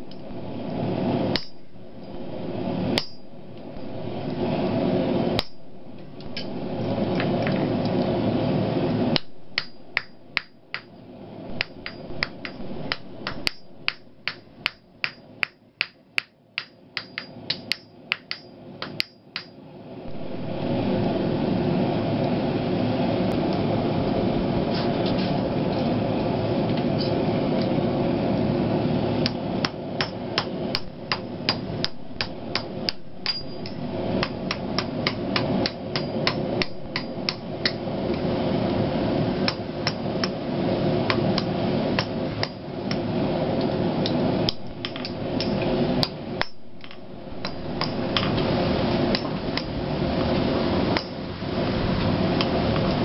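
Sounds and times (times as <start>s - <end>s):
steady rushing noise: 0.0s - 15.6s, 17.0s - 53.0s
hammer ringing on anvil: 3.0s - 3.3s, 32.6s - 36.4s.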